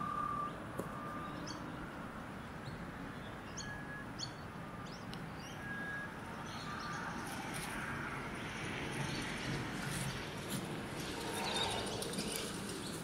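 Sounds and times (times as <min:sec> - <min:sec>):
birds chirping: 0:00.0 - 0:07.3, 0:11.2 - 0:13.0
low outdoor background: 0:00.0 - 0:13.0
whistled bird notes: 0:03.4 - 0:07.0.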